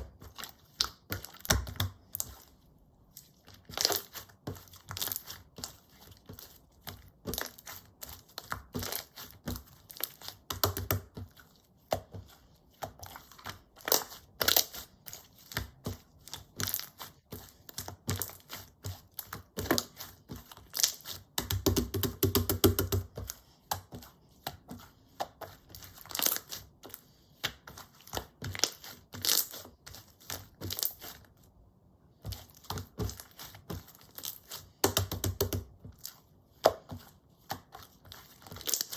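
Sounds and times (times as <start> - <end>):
slime squished by hand: 3.5 - 12.1, 32.2 - 38.9.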